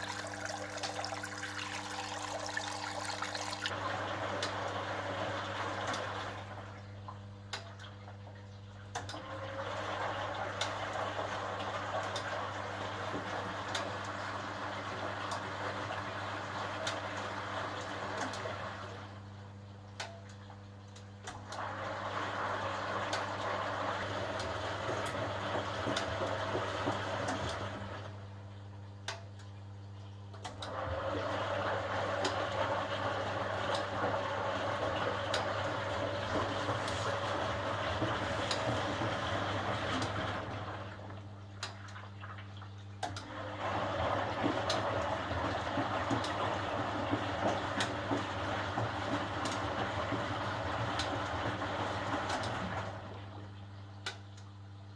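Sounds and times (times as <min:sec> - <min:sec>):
washing machine drum turning: 0:00.0 - 0:04.5, 0:30.6 - 0:41.0, 0:43.1 - 0:53.1.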